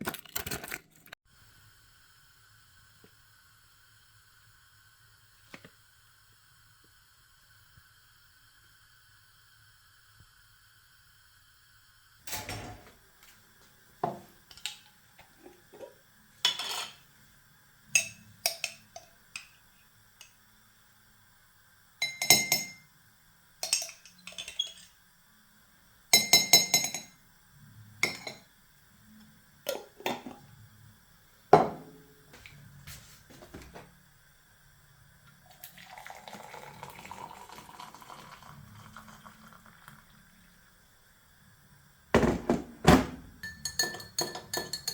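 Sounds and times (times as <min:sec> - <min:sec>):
dishes and cutlery clinking: 0:15.8 - 0:17.0, 0:43.4 - 0:44.9.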